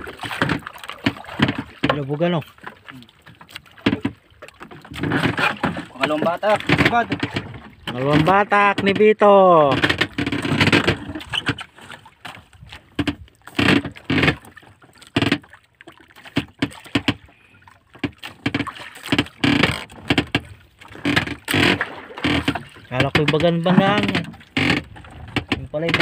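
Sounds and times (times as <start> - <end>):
water slapping against boat hull: 0.0 - 26.0.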